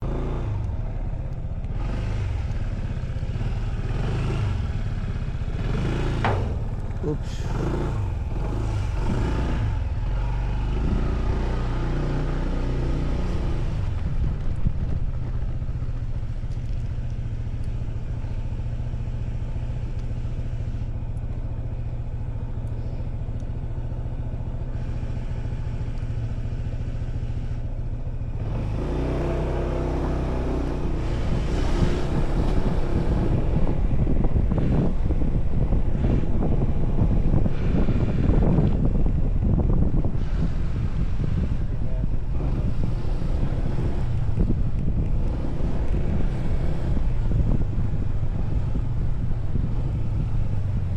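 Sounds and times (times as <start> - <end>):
motorcycle engine drone: 0.0 - 50.9
wind buffeting microphone: 12.5 - 17.9, 30.7 - 50.9.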